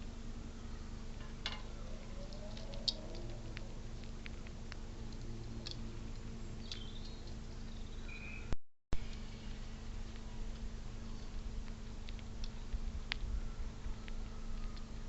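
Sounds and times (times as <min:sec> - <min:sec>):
steady low hum: 0:00.0 - 0:15.0
bird chirps: 0:06.4 - 0:09.6
small clicks and taps: 0:11.3 - 0:15.0.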